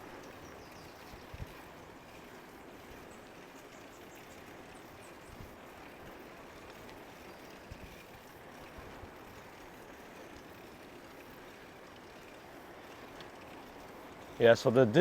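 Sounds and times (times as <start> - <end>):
soft ticks: 0.0 - 14.5
outdoor background noise: 0.0 - 15.0.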